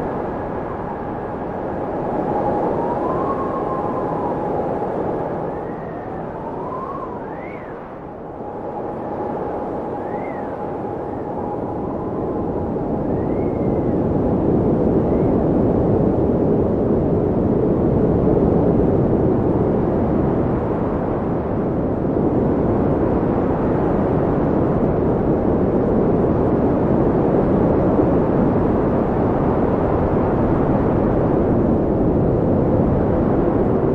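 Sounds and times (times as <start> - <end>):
wind blowing hard: 0.0 - 33.9
faint whistle: 2.2 - 14.0.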